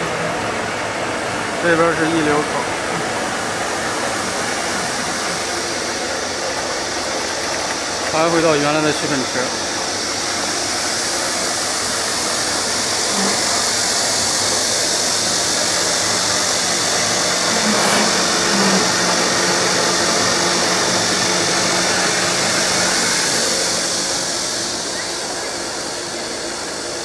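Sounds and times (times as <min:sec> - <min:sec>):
loud rushing hiss: 0:00.0 - 0:27.0
motor hum: 0:11.3 - 0:26.0.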